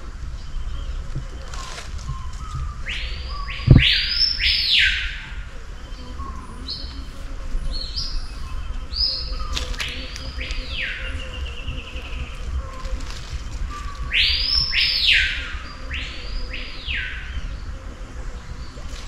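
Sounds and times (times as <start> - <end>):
low thump: 3.6 - 4.0.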